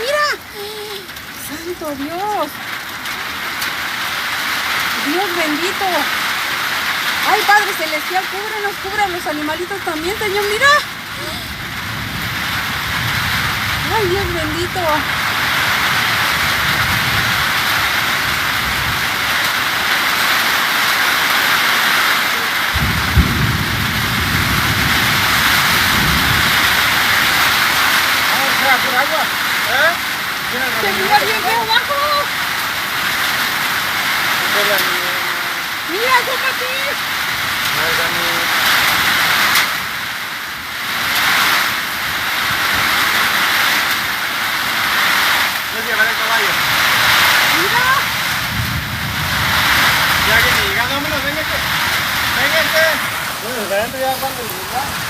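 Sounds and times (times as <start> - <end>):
rain and wind hissing: 0.0 - 55.0
low thunder rumble: 1.3 - 34.6, 46.4 - 55.0
storm wind on microphone: 8.3 - 20.5, 22.7 - 28.6, 46.4 - 55.0.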